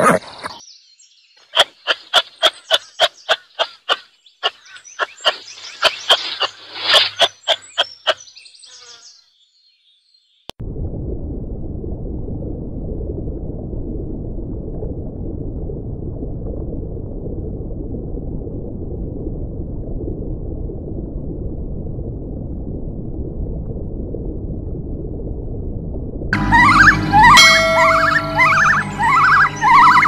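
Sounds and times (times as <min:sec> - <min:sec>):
muffled underwater rush: 0:10.6 - 0:30.0.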